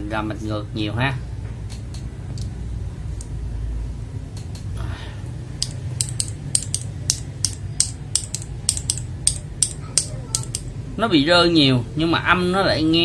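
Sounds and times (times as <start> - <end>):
mechanical keyboard clacks: 5.6 - 10.7.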